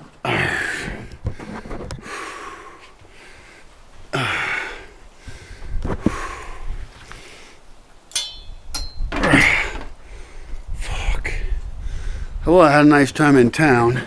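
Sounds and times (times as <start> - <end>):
man breathing heavily: 0.0 - 7.7, 9.2 - 12.4.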